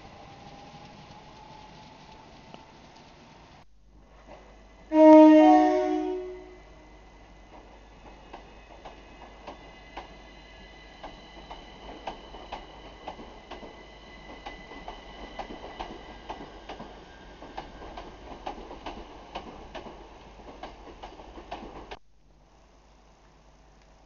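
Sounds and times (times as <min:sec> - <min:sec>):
train rumble: 0:00.0 - 0:22.0
train wheels clicking over rail joints: 0:10.9 - 0:22.0.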